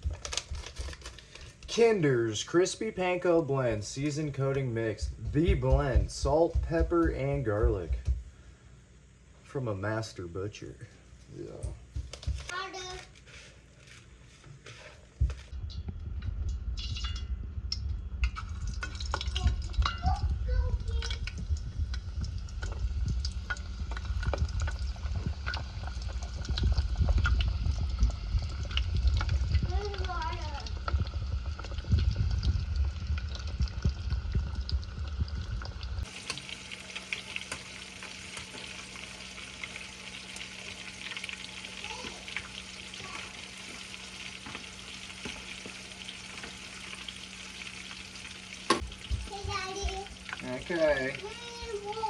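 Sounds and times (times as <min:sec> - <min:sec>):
oil popping and crackling: 0:00.0 - 0:03.1, 0:11.5 - 0:13.2, 0:14.8 - 0:52.0
fish frying in hot oil: 0:14.8 - 0:52.0
low rumble: 0:15.4 - 0:36.2.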